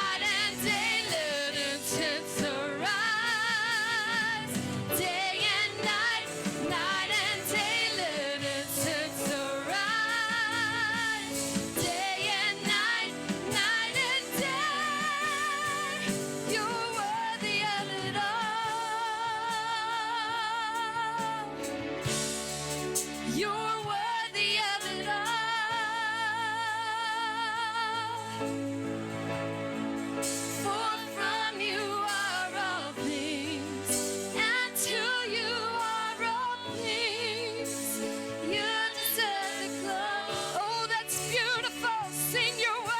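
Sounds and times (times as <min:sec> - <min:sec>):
person singing with vibrato: 0:00.0 - 0:21.6, 0:30.6 - 0:42.9
instrumental accompaniment: 0:00.0 - 0:42.9.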